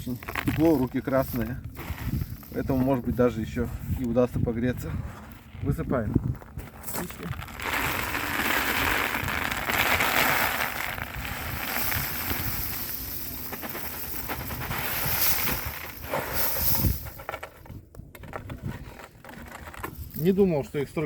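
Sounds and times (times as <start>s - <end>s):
wooden matches pouring rattle: 0.0s - 3.3s, 6.9s - 17.8s.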